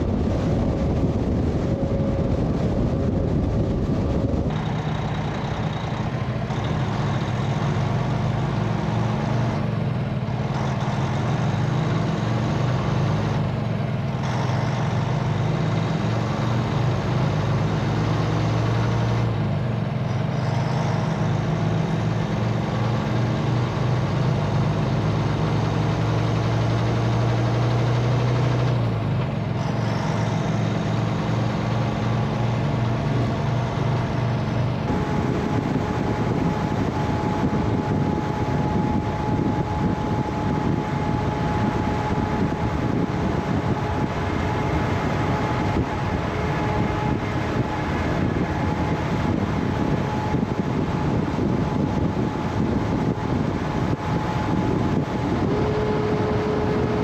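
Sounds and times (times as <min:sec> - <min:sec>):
truck diesel engine running: 0:00.0 - 0:57.0
steady high tone: 0:53.8 - 0:57.0.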